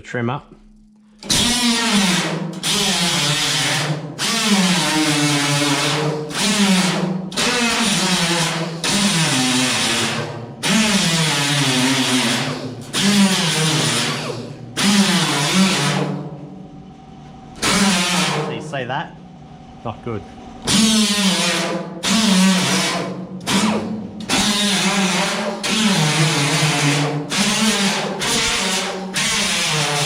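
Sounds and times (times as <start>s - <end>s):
power grinder on steel: 1.2s - 16.2s, 17.6s - 18.6s, 20.6s - 30.0s.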